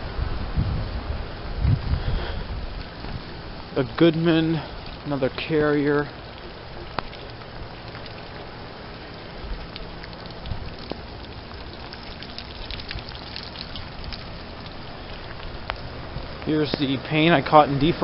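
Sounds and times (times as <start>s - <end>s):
fan air rushing: 0.0s - 18.0s
light crackling ticks: 4.0s - 16.9s.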